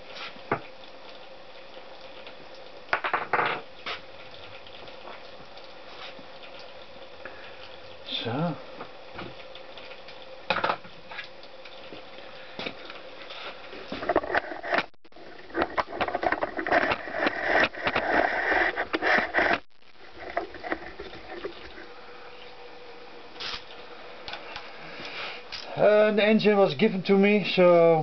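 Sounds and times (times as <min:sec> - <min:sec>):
rubbing and clattering: 0:13.8 - 0:21.8.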